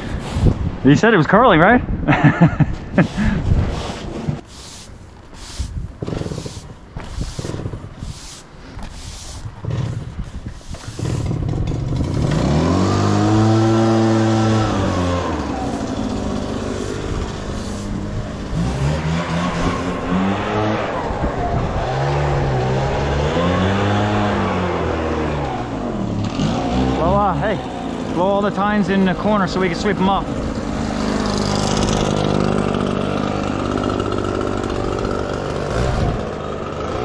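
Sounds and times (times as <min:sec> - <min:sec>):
leaf blower engine revving: 0:00.0 - 0:00.6, 0:03.0 - 0:37.0
starter cord strokes: 0:03.0 - 0:20.8.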